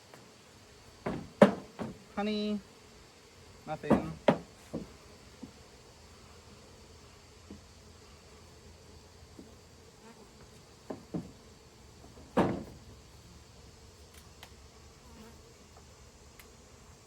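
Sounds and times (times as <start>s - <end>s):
honey bees buzzing: 0.0s - 17.0s
light knocks: 1.0s - 2.0s
loud thump: 1.0s - 2.0s, 12.2s - 12.8s.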